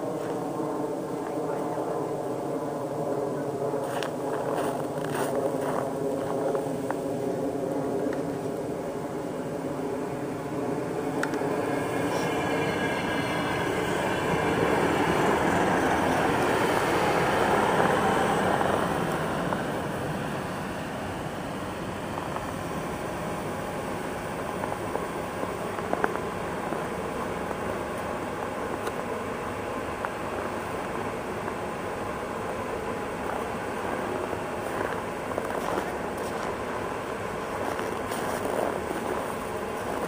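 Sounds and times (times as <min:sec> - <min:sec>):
thin high whine: 0:00.0 - 0:40.0
electric train braking to stop: 0:11.5 - 0:20.9.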